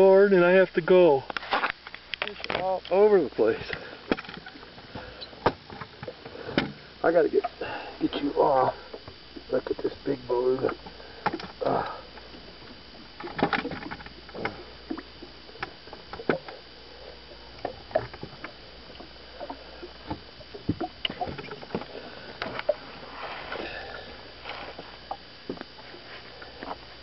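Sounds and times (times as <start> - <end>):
bumps against boat: 3.6 - 6.9.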